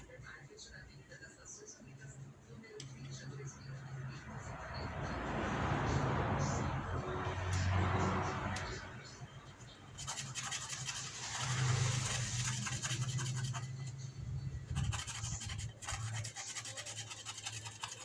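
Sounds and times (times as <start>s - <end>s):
rapid scraping and rasping: 9.9s - 18.0s.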